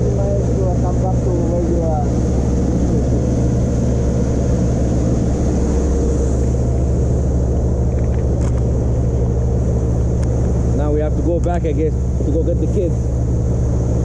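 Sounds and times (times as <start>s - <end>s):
motorboat engine running: 0.0s - 14.0s
wind: 0.0s - 14.0s.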